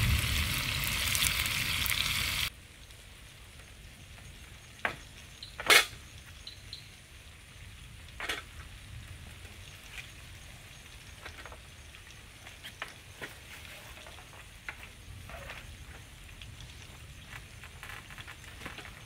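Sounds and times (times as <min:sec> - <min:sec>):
food sizzling in a pan: 0:00.0 - 0:02.5
steady low rumble: 0:00.0 - 0:02.5.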